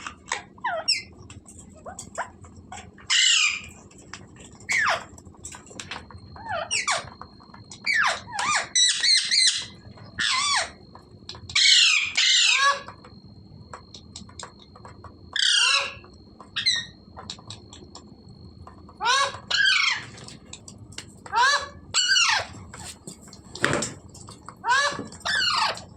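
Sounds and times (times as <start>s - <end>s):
parakeet squawking: 0.3s - 1.1s, 3.0s - 3.7s, 4.7s - 5.0s, 7.8s - 10.8s, 11.6s - 12.9s, 15.4s - 16.0s, 19.0s - 20.1s, 21.3s - 22.5s, 24.6s - 25.8s.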